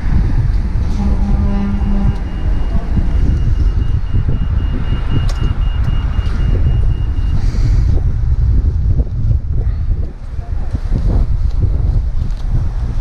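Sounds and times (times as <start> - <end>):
wind buffeting microphone: 0.0 - 13.0
high electronic beeping: 1.7 - 7.4.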